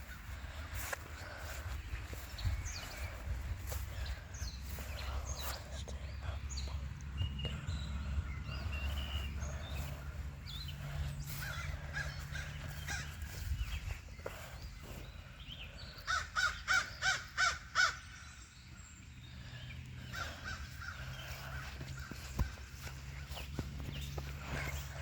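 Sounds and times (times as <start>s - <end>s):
low steady hum: 0.0s - 16.2s
bird calling: 0.0s - 18.5s, 19.3s - 25.0s.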